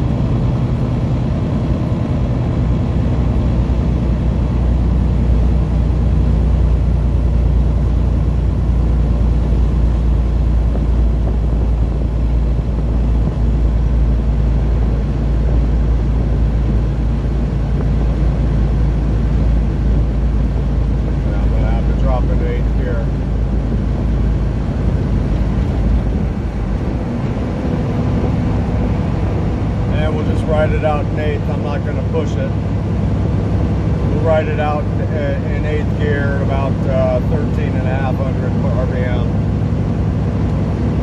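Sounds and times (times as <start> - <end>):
truck diesel engine droning: 0.0 - 41.0.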